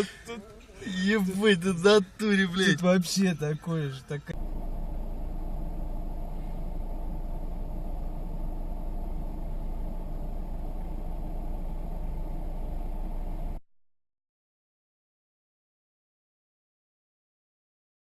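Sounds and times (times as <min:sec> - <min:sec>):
car engine and road noise: 0:00.0 - 0:13.6.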